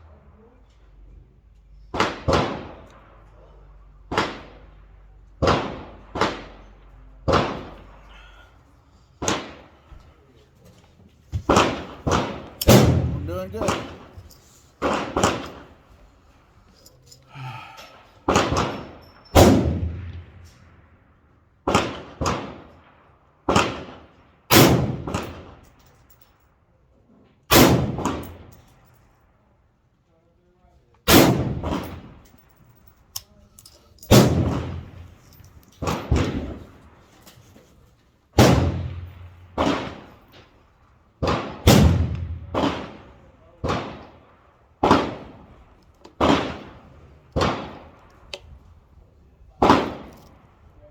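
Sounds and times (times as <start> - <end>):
rifle shots with echo: 1.9 - 3.4, 4.0 - 8.0, 9.2 - 9.8, 11.5 - 14.2, 14.8 - 15.7, 18.3 - 20.9, 21.6 - 25.6, 27.5 - 28.6, 31.1 - 32.2, 34.1 - 35.2, 35.8 - 37.0, 38.4 - 48.7, 49.5 - 50.7.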